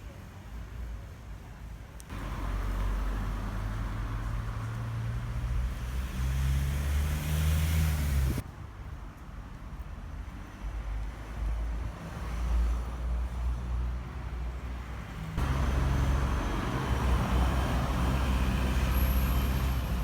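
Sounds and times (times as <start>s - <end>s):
motor vehicle engine running: 15.4s - 20.0s.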